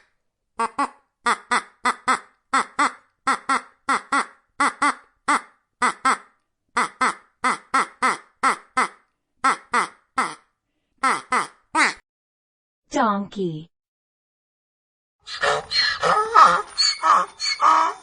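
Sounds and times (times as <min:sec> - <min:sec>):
duck quacking: 0:00.6 - 0:10.4, 0:11.0 - 0:12.0, 0:15.3 - 0:18.0.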